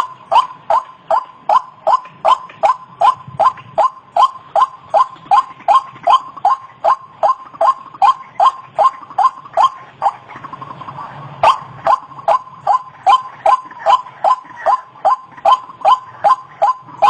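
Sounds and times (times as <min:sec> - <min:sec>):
waterhen calling: 0:00.0 - 0:17.0.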